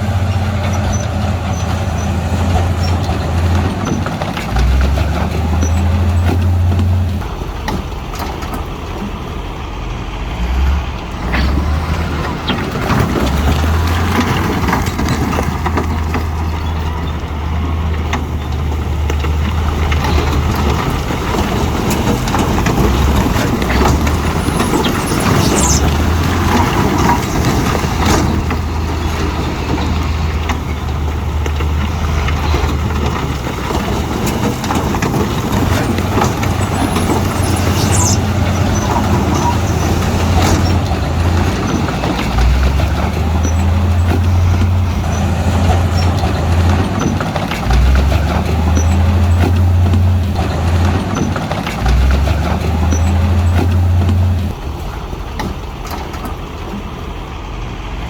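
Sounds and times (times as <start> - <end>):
heavy diesel engine drone: 0.0 - 58.0
metallic knocks and clanks: 11.3 - 54.6.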